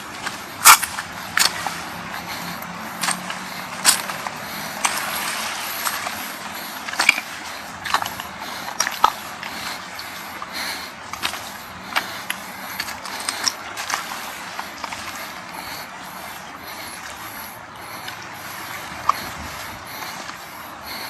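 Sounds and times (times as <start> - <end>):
breeze: 0.0 - 21.0
waves hissing: 0.0 - 21.0.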